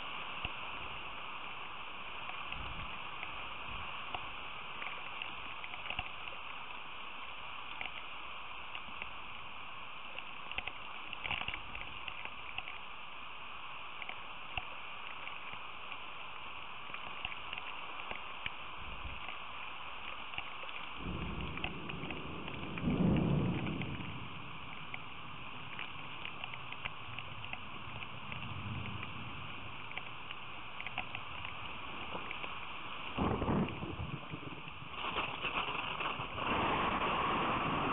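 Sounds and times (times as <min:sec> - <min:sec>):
steady rain: 0:00.0 - 0:37.9
sharp drip ticks: 0:20.0 - 0:25.1, 0:25.7 - 0:29.2, 0:29.8 - 0:32.7
low rumble of thunder: 0:21.0 - 0:30.0, 0:33.0 - 0:37.9.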